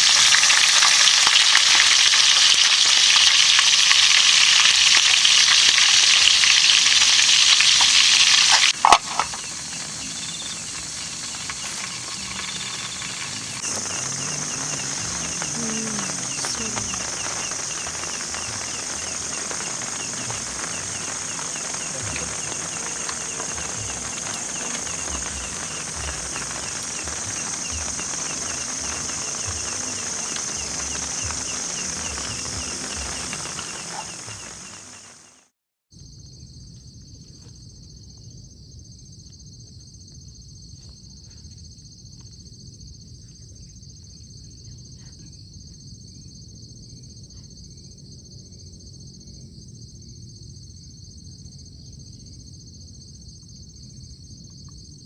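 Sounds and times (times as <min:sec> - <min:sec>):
quiet outdoor hiss: 0:00.0 - 0:35.4
oil sizzling in a frying pan: 0:00.0 - 0:35.5
thin high-pitched drone: 0:09.3 - 0:35.2.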